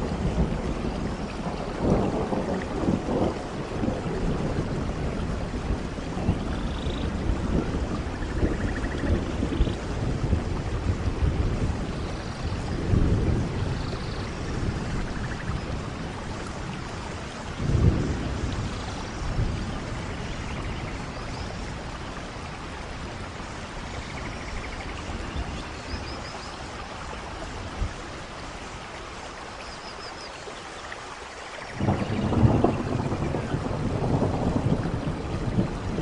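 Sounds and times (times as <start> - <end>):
rain on leaves: 0.0 - 36.0.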